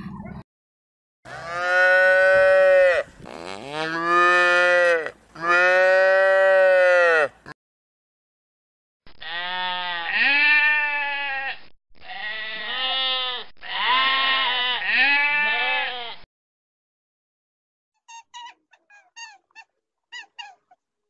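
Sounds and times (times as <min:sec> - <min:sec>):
goat bleating: 0:01.3 - 0:07.4, 0:09.2 - 0:16.2.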